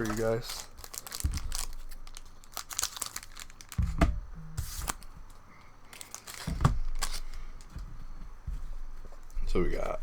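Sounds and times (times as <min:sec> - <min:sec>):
wrapper tearing and crinkling: 0:00.0 - 0:03.9, 0:05.9 - 0:07.4.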